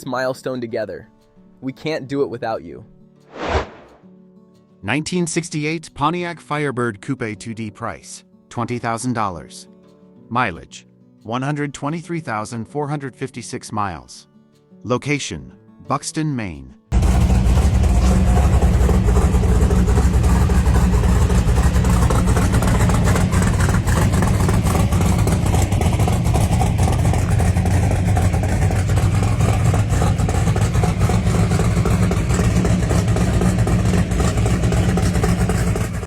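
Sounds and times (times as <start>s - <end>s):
car engine rumbling loudly: 16.9s - 36.0s.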